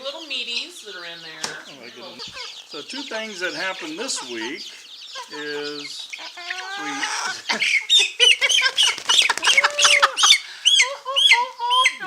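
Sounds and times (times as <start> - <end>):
chicks peeping: 0.0 - 12.0
longer lower bird call: 0.3 - 12.0.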